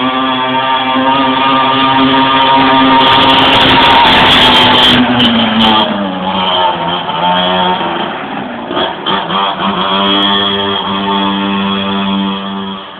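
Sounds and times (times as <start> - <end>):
small engine running: 0.0 - 7.8, 8.7 - 12.9.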